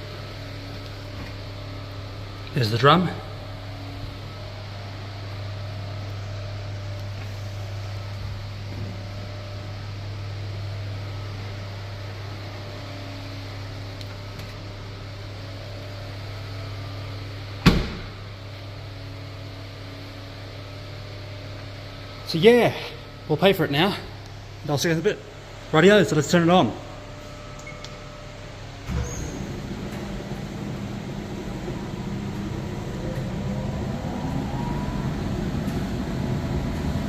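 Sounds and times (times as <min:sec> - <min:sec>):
low electrical hum of machines: 0:00.0 - 0:37.0
dryer door slamming: 0:17.6 - 0:18.2.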